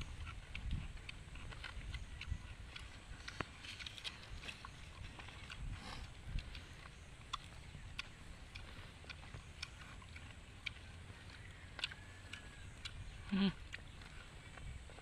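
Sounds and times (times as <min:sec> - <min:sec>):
chewing clicks and mouth smacks: 0:00.0 - 0:15.0
low steady hum: 0:00.0 - 0:15.0.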